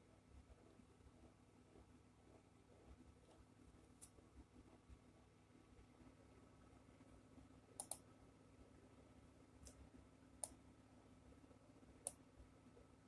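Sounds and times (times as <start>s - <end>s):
low room hum: 0.0s - 13.0s
computer mouse clicks: 7.8s - 8.0s, 10.4s - 10.6s.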